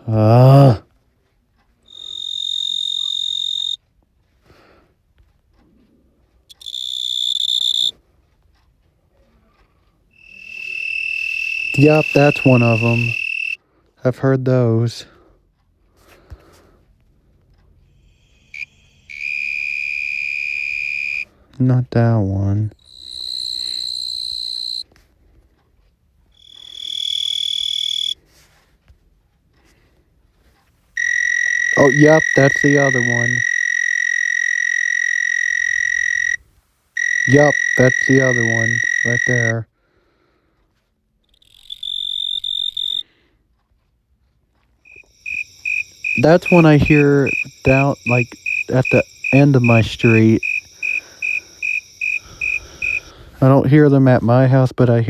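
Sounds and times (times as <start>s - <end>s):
cricket trilling: 1.9s - 3.8s, 6.5s - 7.9s, 10.2s - 13.6s, 18.0s - 21.2s, 22.8s - 24.8s, 26.4s - 28.2s, 31.0s - 36.4s, 37.0s - 39.6s, 41.3s - 43.0s, 44.9s - 53.4s.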